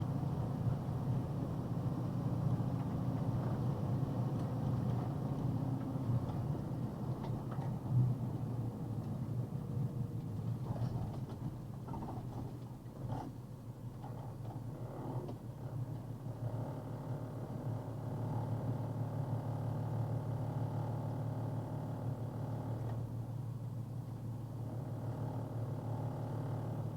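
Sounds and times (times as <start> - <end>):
truck engine and road rumble: 0.0 - 17.2.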